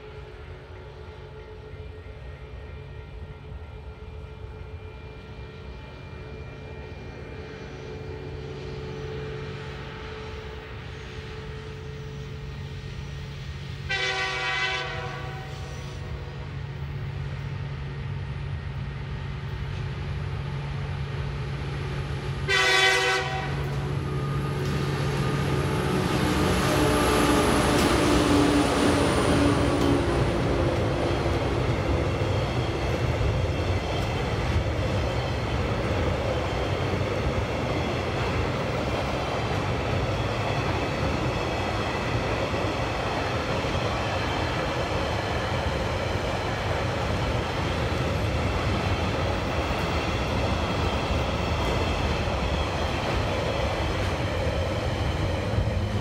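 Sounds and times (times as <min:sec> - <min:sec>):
diesel locomotive engines: 0:00.0 - 0:56.0
train horn blast: 0:13.8 - 0:16.4, 0:22.4 - 0:25.6.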